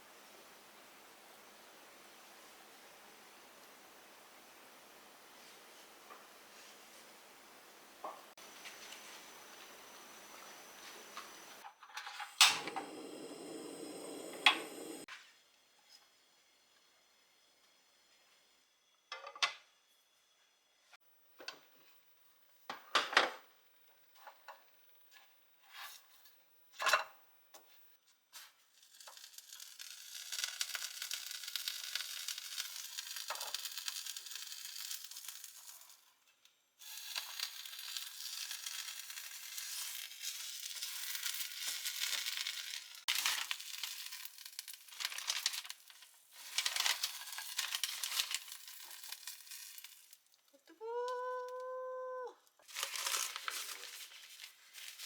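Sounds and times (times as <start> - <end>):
food sizzling in a frying pan: 12.4 - 15.1, 28.3 - 36.2, 36.8 - 50.4.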